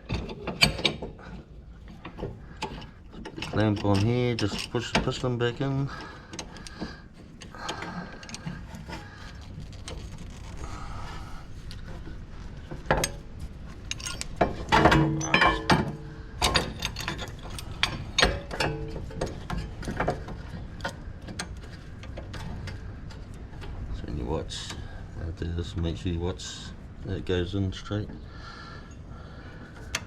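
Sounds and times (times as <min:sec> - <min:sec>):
metal clicks and clinks: 0:00.1 - 0:06.8, 0:07.4 - 0:10.4, 0:12.8 - 0:23.8.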